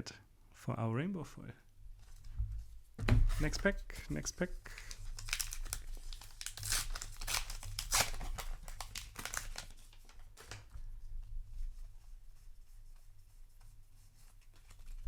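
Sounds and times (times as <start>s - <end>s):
paper wrapper tearing and crinkling: 4.6s - 10.6s.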